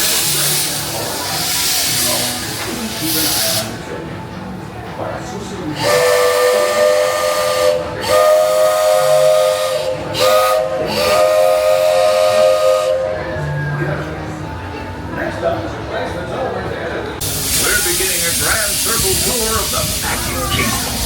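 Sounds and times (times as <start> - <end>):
steam hissing: 0.0 - 4.0, 5.8 - 13.1, 17.2 - 21.0
steam locomotive whistle: 5.8 - 13.8.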